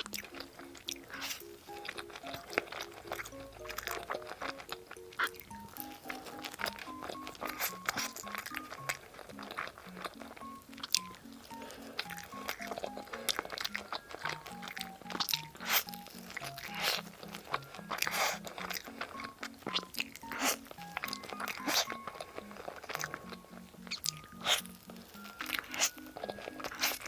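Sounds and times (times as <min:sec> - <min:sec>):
crisp crunching and chewing: 0:00.0 - 0:27.0
simple background music: 0:00.0 - 0:27.0.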